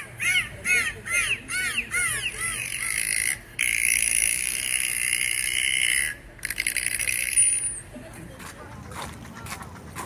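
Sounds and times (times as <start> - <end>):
bird cawing: 0.0 - 3.4.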